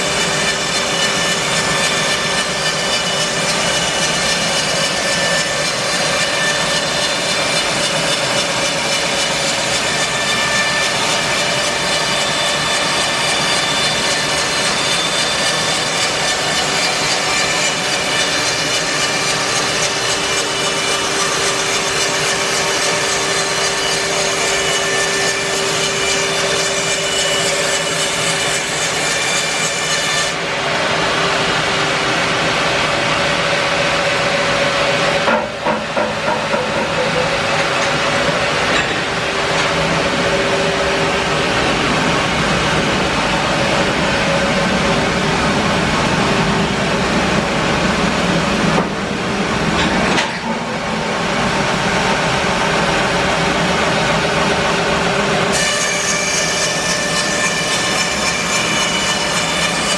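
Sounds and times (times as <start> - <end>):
band saw cutting log: 0.0 - 45.5, 49.6 - 59.9.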